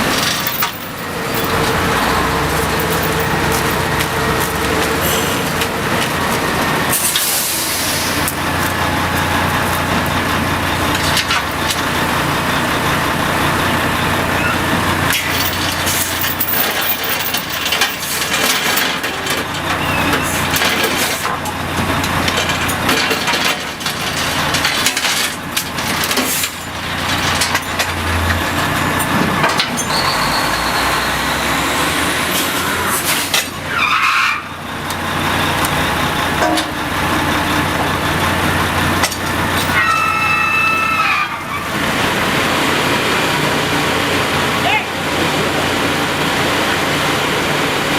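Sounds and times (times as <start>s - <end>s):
machinery humming: 0.0s - 33.8s, 34.4s - 47.9s
metal knocks and clanks: 36.4s - 37.0s.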